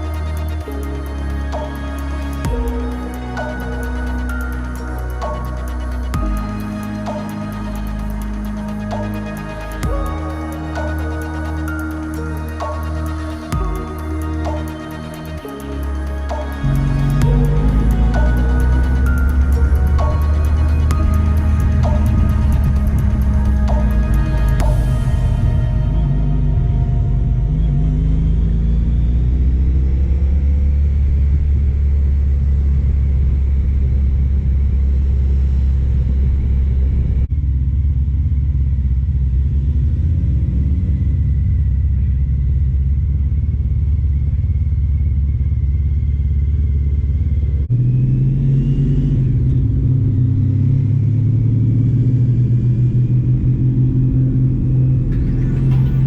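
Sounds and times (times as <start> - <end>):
road and wind noise: 15.4 - 56.0.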